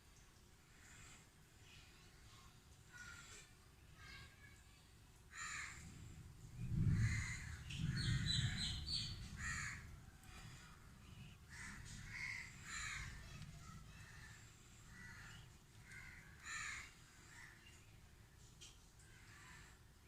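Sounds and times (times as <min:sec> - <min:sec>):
crows cawing: 0:02.9 - 0:03.4, 0:05.3 - 0:06.0, 0:06.9 - 0:10.8, 0:11.5 - 0:17.8, 0:19.0 - 0:19.8.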